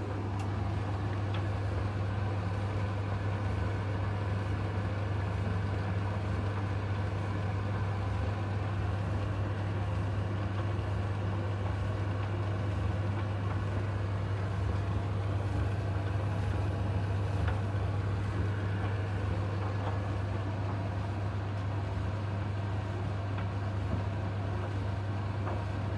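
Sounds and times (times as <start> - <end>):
tumble dryer humming: 0.0 - 1.2.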